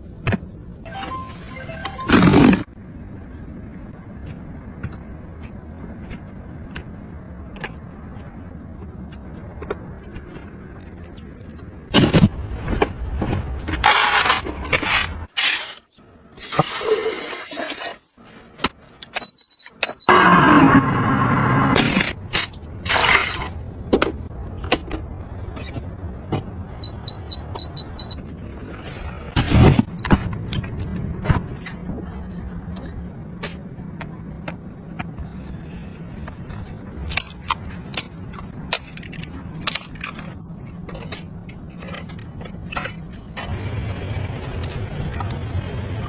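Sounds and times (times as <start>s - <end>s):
short high beeps: 0.9s - 2.2s
steady low hum: 20.1s - 46.0s
household gadgets clicking and tapping: 36.2s - 43.5s.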